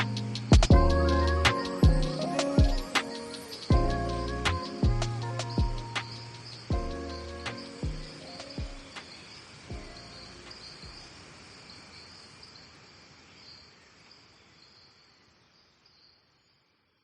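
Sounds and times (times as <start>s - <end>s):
music: 0.0s - 10.7s
insects chirping: 0.0s - 17.0s.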